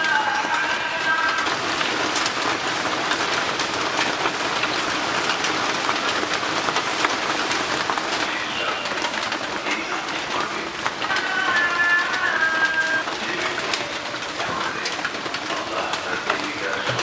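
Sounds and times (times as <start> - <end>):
heavy rain on roof: 0.0 - 17.0.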